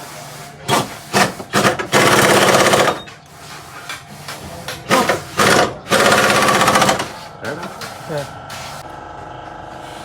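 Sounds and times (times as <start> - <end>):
pneumatic impact wrench rattling: 0.7 - 3.1, 4.8 - 7.2.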